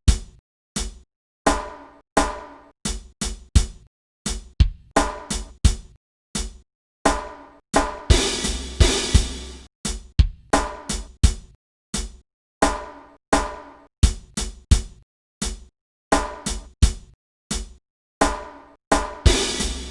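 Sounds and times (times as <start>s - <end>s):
drum kit hip-hop groove: 0.0s - 19.9s
cymbal crash: 19.3s - 19.9s.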